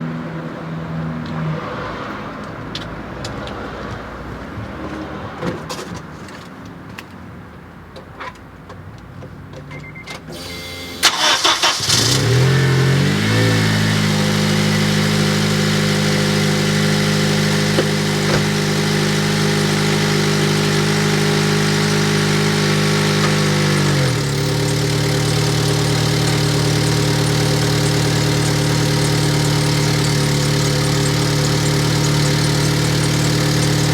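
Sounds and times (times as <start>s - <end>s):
car engine cranking and idling: 10.3s - 33.9s.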